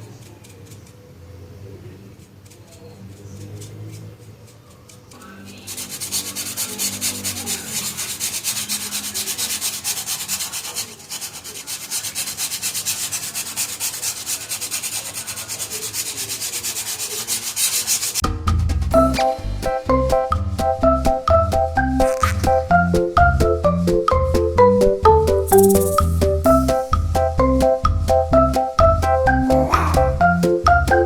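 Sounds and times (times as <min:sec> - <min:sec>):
sanding styrofoam: 0:05.6 - 0:18.2.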